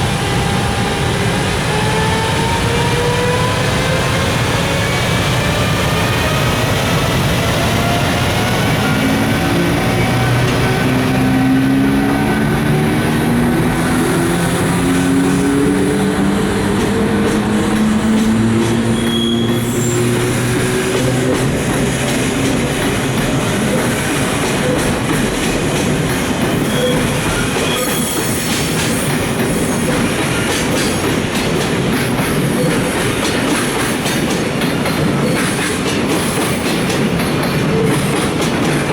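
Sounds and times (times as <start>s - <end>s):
electric locomotive motors whining: 0.0s - 38.9s
train wagons rumbling: 0.0s - 38.9s
wheels clacking over rail joints: 8.4s - 38.9s.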